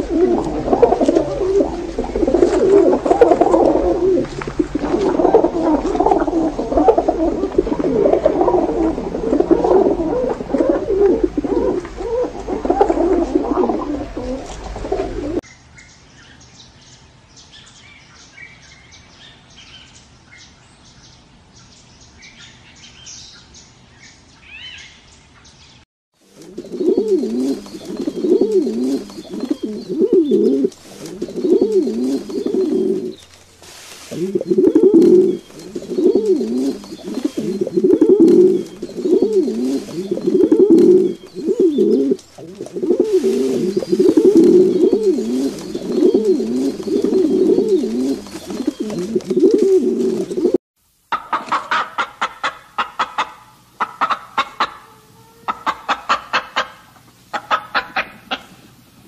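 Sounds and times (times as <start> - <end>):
pigeons cooing: 0.0 - 15.4, 26.4 - 50.6.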